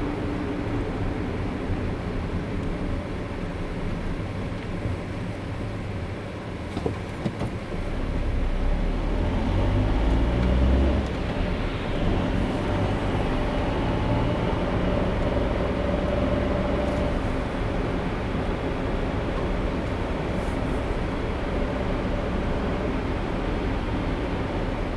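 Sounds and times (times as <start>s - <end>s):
car tyres and engine rumble: 0.0s - 24.9s.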